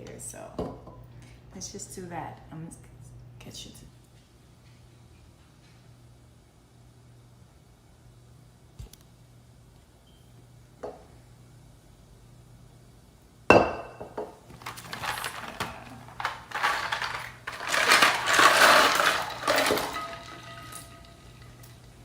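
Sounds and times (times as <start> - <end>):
dishes and utensils clinking: 13.6 - 21.8.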